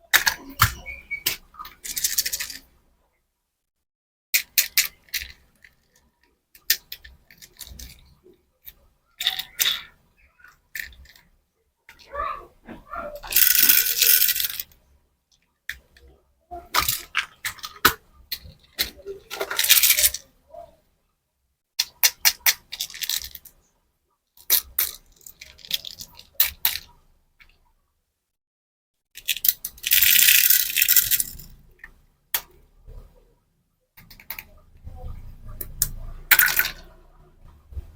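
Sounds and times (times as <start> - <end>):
candies rattling in plastic packaging: 13.2 - 14.7, 16.8 - 20.2, 22.7 - 23.4, 29.2 - 31.5.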